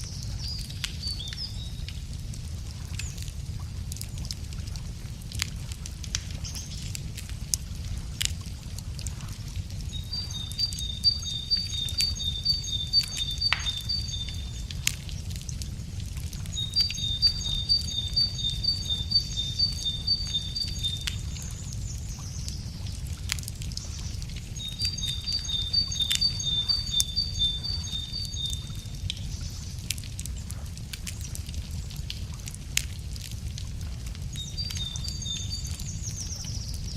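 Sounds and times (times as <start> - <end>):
wood fire crackling: 0.0 - 36.9
songbird singing high notes: 10.0 - 14.6, 16.6 - 21.3, 24.6 - 28.8.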